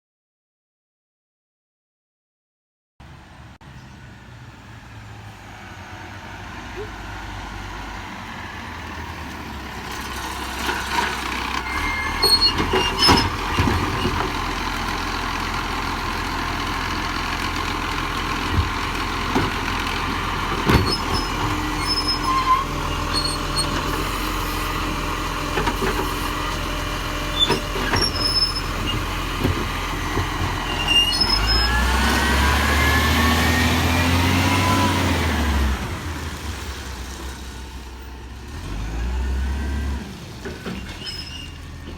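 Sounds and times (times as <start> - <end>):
diesel engine running: 4.0 - 41.9
engine revving with rising whine: 31.2 - 36.6, 38.5 - 40.4.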